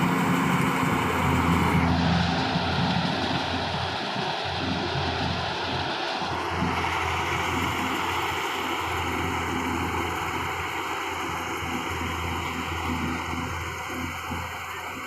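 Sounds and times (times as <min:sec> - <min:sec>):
combine harvester droning: 0:00.0 - 0:15.0.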